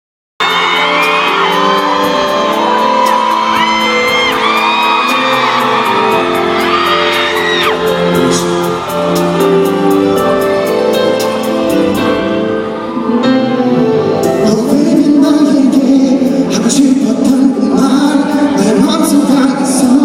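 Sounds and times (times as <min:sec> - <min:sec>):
crowd of fans screaming: 0:00.4 - 0:13.5
live pop song over loudspeakers: 0:00.4 - 0:20.0.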